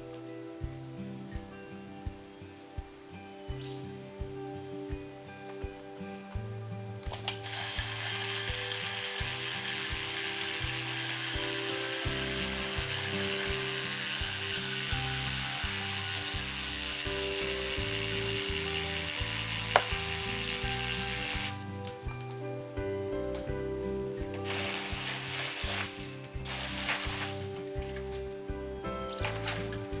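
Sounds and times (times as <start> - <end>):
background music: 0.0 - 30.0
reciprocating saw cutting bamboo: 7.2 - 21.7, 24.4 - 27.6.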